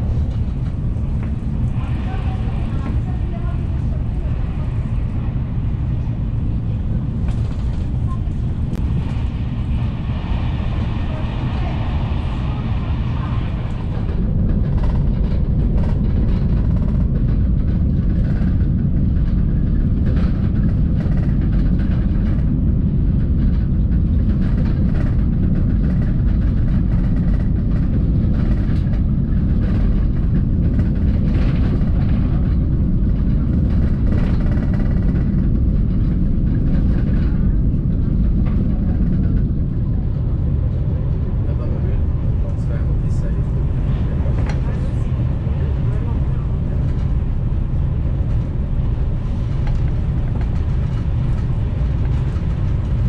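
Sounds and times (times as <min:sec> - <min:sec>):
train rumble at speed: 0:00.0 - 0:53.0.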